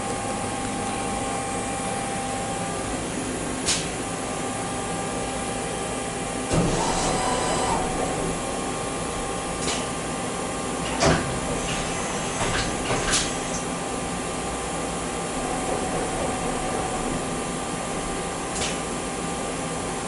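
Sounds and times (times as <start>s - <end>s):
machine tool humming: 15.2s - 18.6s.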